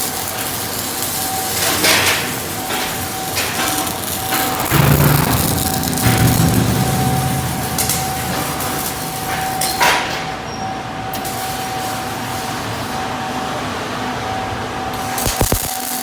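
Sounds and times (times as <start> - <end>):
steady mechanical din: 1.8 - 11.2
sharp knock: 4.6 - 10.4.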